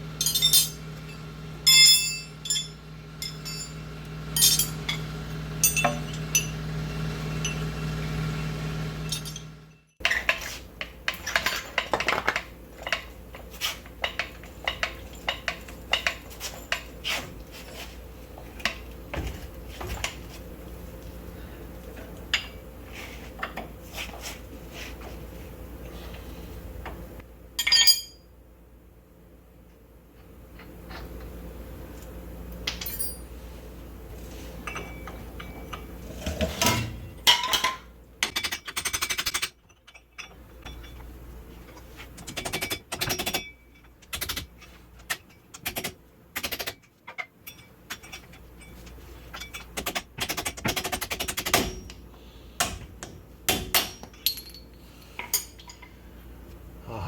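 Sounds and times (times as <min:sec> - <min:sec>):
metal hand tools clinking: 0:00.2 - 0:00.8, 0:01.6 - 0:03.8, 0:04.4 - 0:05.0, 0:54.2 - 0:54.7.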